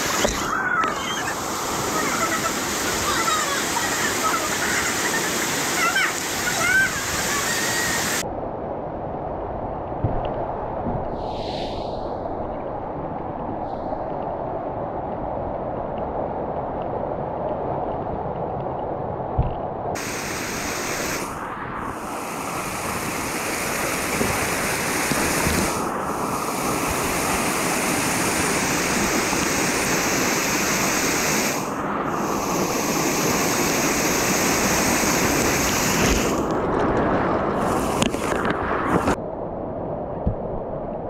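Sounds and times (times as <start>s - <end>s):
mountain stream rushing: 0.0s - 8.2s, 20.0s - 39.2s.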